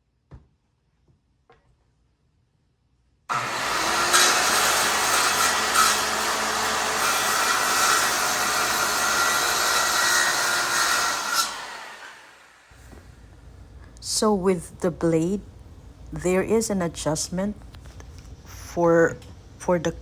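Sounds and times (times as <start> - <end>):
circular saw cutting wood: 3.3 - 12.7.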